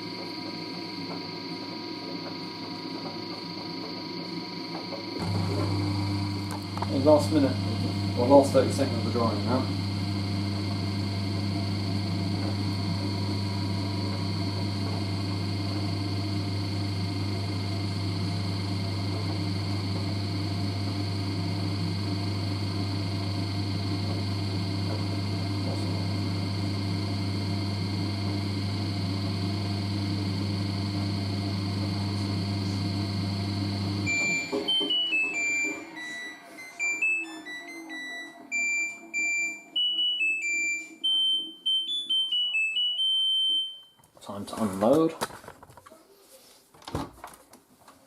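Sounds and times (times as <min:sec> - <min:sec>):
washer dryer humming: 0:00.0 - 0:37.1.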